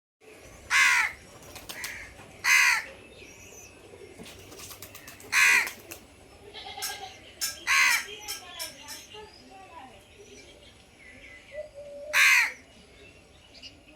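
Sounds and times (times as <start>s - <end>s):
crow cawing: 0.7s - 2.9s, 5.3s - 5.8s, 7.6s - 8.2s, 12.1s - 12.6s.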